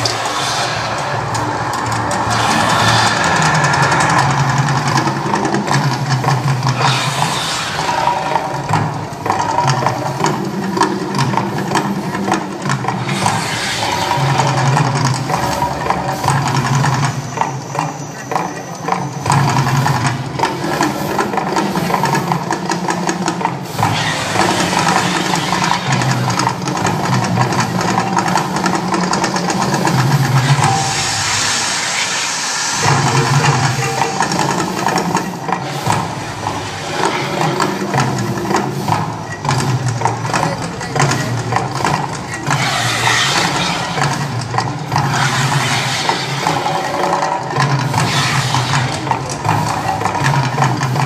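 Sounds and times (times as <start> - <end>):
hissing surges: 0.0 - 9.2, 12.8 - 16.5, 23.7 - 27.0, 29.8 - 39.1, 40.2 - 49.8.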